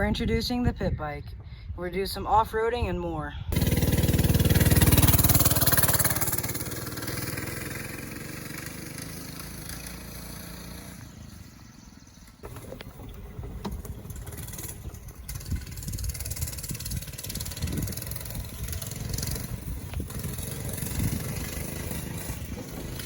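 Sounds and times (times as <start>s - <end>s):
pit bike engine running: 3.6s - 23.0s
uneven low rumble with knocks: 12.4s - 23.0s.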